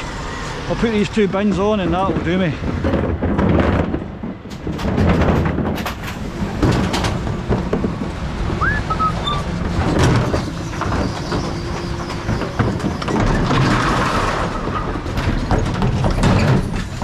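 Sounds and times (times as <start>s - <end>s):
bin lift clattering and rattling: 1.0s - 17.0s
truck engine running: 5.6s - 15.9s
short rising squeak: 8.6s - 9.6s.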